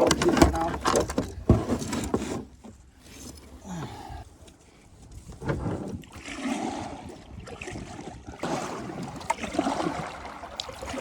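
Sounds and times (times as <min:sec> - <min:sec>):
kayak paddle splashing: 0:06.0 - 0:11.0.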